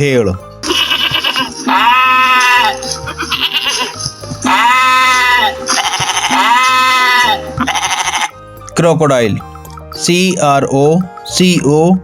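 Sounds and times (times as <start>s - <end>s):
background music: 0.0s - 12.0s
sheep bleating: 0.6s - 8.4s.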